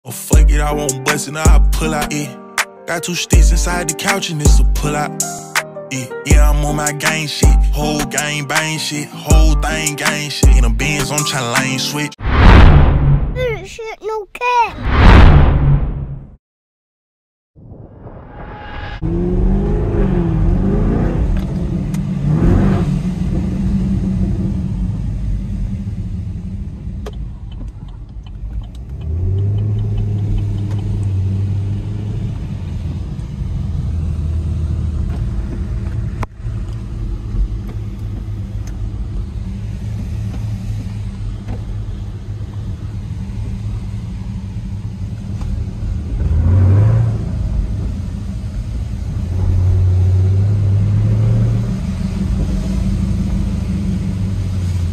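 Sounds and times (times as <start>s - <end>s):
car engine revving and cruising: 19.0s - 54.9s.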